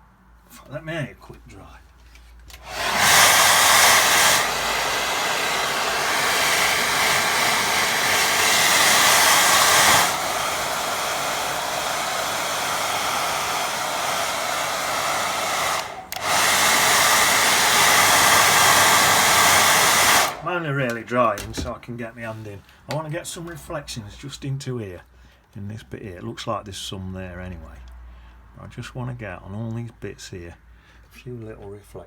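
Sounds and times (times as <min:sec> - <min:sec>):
hair dryer blowing: 0:02.5 - 0:21.8.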